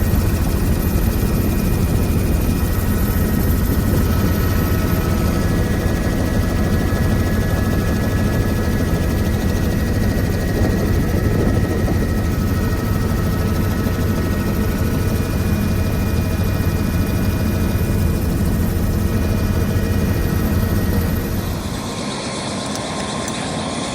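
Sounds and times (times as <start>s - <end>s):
helicopter rotor and engine rumble: 0.0s - 23.9s
high whine: 20.0s - 23.9s.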